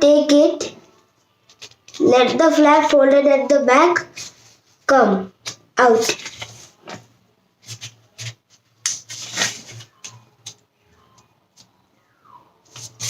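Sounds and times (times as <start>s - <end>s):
paper rustling and crackling: 5.9s - 7.0s, 7.6s - 10.6s, 12.7s - 13.0s.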